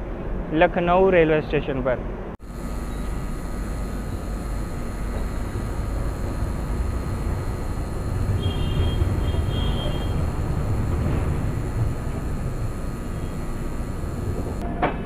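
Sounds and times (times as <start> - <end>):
passenger train rumbling: 3.1 - 15.0.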